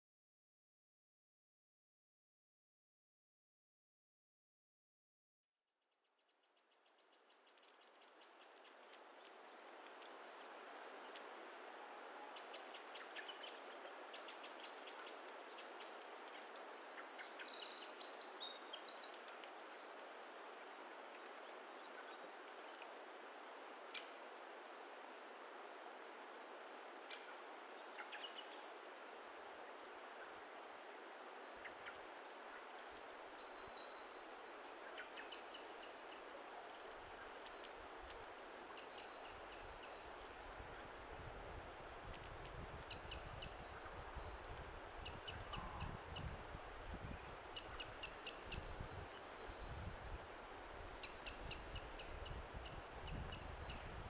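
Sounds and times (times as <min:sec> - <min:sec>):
steady outdoor hiss: 0:05.9 - 0:54.0
small birds chirping and singing: 0:50.6 - 0:54.0.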